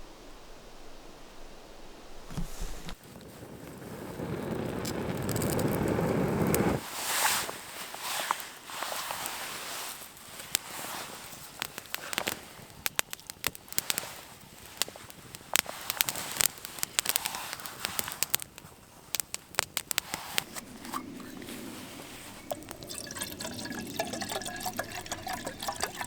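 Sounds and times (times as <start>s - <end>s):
campfire crackling and popping: 2.3s - 26.0s.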